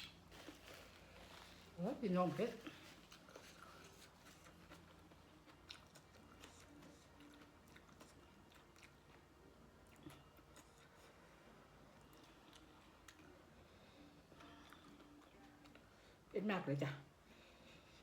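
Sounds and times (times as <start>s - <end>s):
low steady hum: 0.0s - 18.0s
person chewing: 2.7s - 11.3s, 11.9s - 13.4s, 14.3s - 15.9s.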